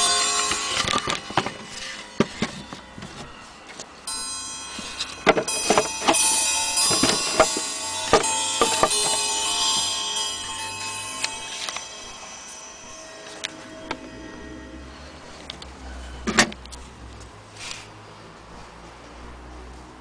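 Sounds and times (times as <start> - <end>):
clock chime rods ringing: 0.0 - 16.2
sharp clicks and knocks: 4.8 - 10.0.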